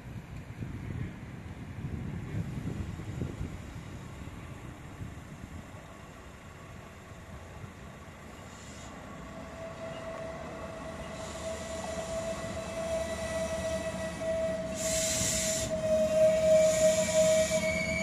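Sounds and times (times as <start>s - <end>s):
diesel railcar approaching: 0.0s - 18.0s
burst of hiss: 8.4s - 9.1s, 11.1s - 12.4s, 14.6s - 15.8s, 16.5s - 17.7s.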